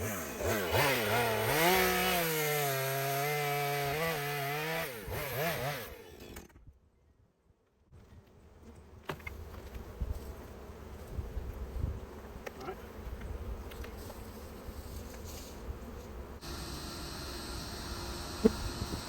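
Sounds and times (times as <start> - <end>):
honeybees buzzing: 9.4 - 19.0.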